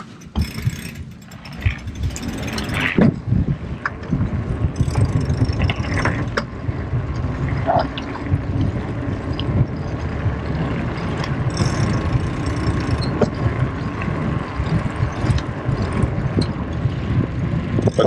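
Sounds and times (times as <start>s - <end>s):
bicycle tyre rumble: 0.0s - 18.0s
bike clicks and rattles: 0.0s - 18.0s
wind buffeting microphone: 0.0s - 18.0s.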